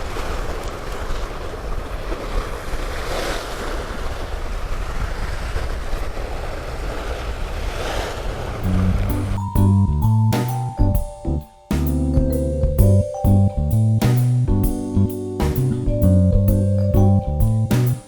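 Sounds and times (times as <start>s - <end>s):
wind buffeting microphone: 3.7s - 9.8s.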